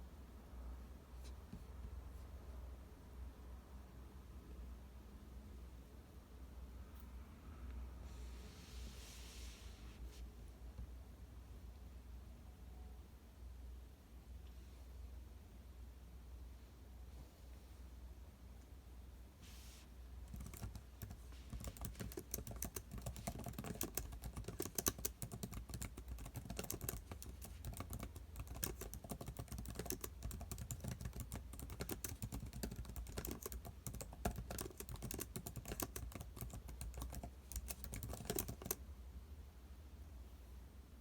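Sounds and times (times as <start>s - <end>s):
low steady hum: 0.0s - 41.0s
keyboard typing: 20.3s - 38.8s.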